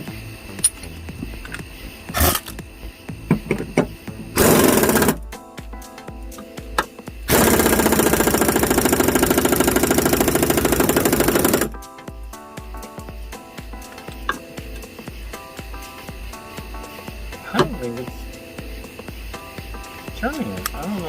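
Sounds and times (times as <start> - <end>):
impact wrench hammering: 3.3 - 5.2, 6.8 - 11.8.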